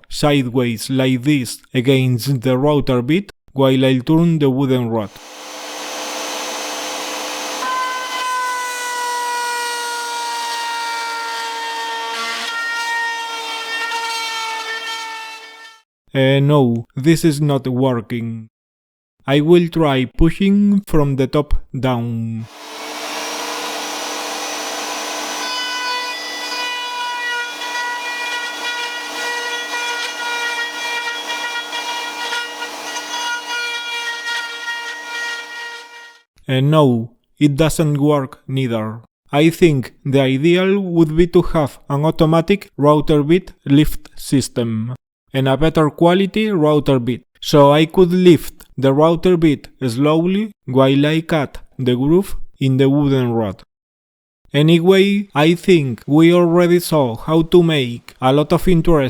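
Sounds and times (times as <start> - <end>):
router running: 5.1 - 15.1, 22.5 - 36.2
router bit whining into wood: 5.1 - 15.8, 22.5 - 36.3.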